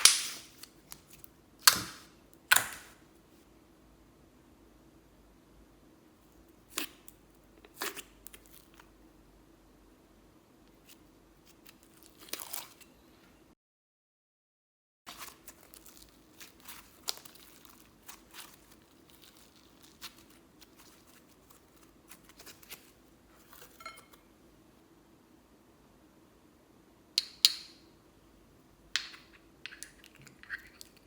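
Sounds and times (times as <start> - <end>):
sticky slime clicks and crackles: 0.0 - 3.0.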